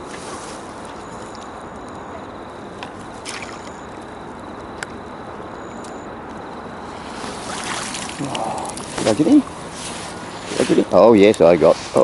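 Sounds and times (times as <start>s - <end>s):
water sloshing: 2.9s - 4.1s, 7.0s - 10.5s
thin high chirp: 3.2s - 4.0s
rain and water hiss: 6.6s - 12.0s.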